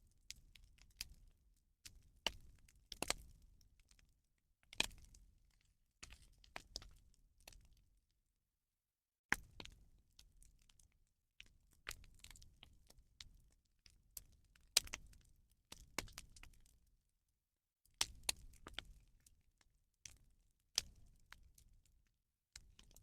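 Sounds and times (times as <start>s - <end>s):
bonfire cracking and popping: 18.0s - 19.0s.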